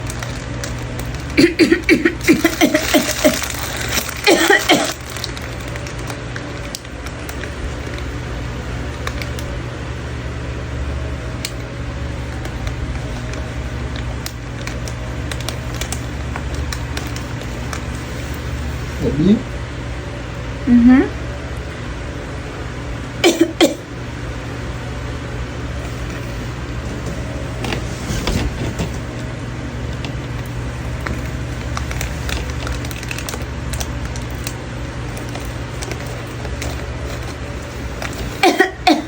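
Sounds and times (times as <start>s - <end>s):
person's voice in short bursts: 19.0s - 19.5s.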